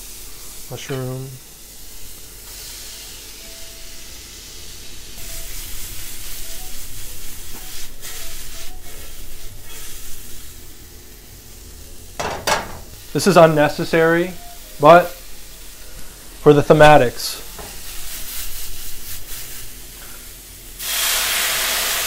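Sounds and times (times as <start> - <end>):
mushrooms sizzling in a frying pan: 0.0 - 22.0
short knocks: 12.2 - 12.9.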